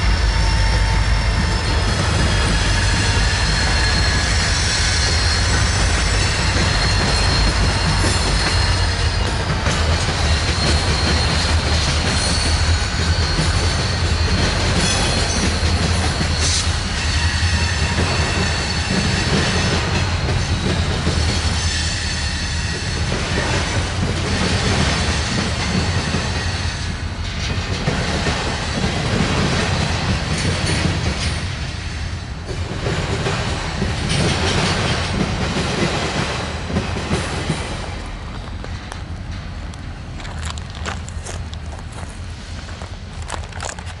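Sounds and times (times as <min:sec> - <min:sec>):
train wheels rumbling on rails: 0:00.0 - 0:44.0
faint wheel squeal: 0:00.1 - 0:09.6, 0:10.2 - 0:23.0.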